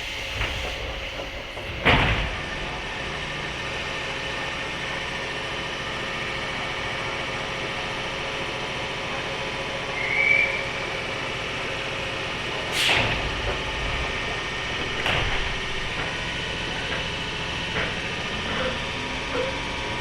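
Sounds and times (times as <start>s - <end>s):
hum inside train car: 0.0s - 20.0s.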